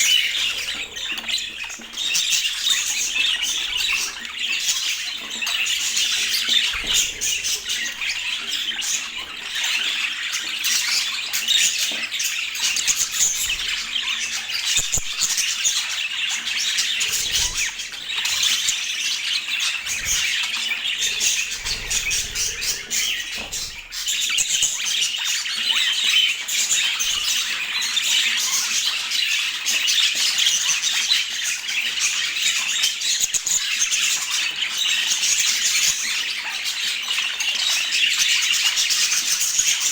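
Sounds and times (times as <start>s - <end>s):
budgerigars chattering and warbling: 0.0s - 39.9s.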